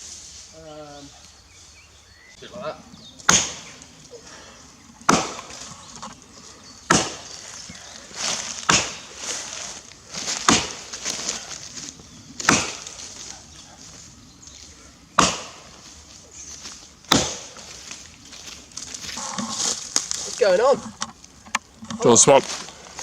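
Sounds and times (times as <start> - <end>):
axe chopping into tree: 3.2 - 3.8, 5.0 - 6.1, 6.8 - 9.5, 10.2 - 11.5, 12.4 - 13.3, 15.2 - 15.8, 17.1 - 17.7.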